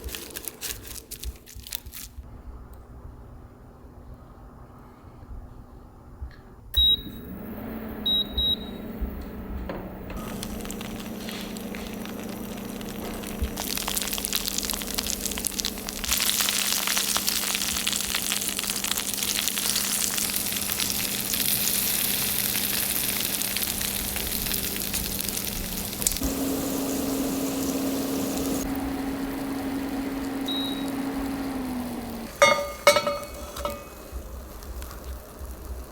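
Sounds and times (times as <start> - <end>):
garlic sizzling in oil: 10.2 - 35.9.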